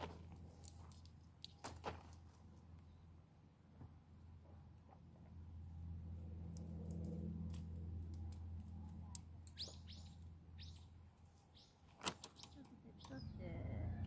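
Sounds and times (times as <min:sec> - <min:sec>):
bird high downward calls: 0:09.5 - 0:13.4.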